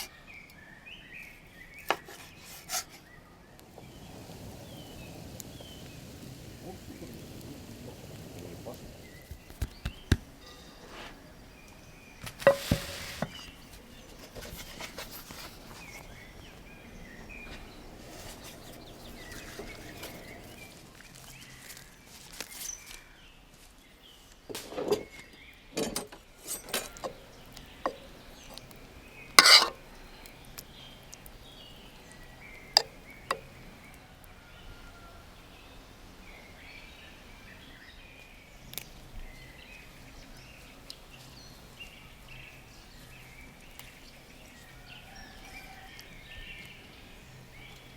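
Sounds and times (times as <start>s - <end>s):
cookware and utensils clinking: 12.2s - 13.6s, 25.7s - 27.2s, 29.4s - 29.8s.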